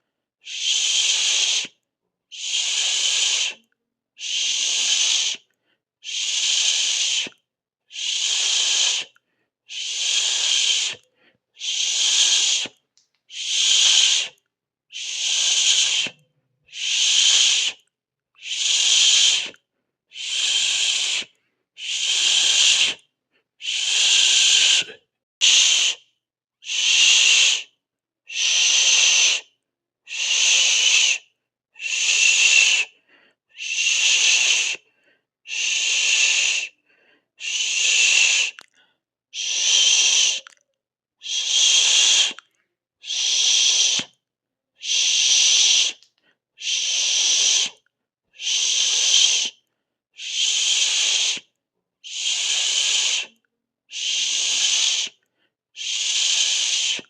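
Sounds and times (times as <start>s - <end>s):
person shushing: 0.4s - 3.6s, 6.0s - 17.8s, 18.4s - 23.0s, 23.6s - 26.0s, 31.8s - 33.0s, 33.6s - 34.8s, 35.5s - 36.7s, 37.4s - 38.7s, 39.4s - 40.6s, 41.2s - 42.4s, 43.0s - 44.1s, 44.8s - 46.0s, 48.4s - 49.5s, 50.2s - 51.5s, 52.1s - 55.2s, 55.8s - 57.0s.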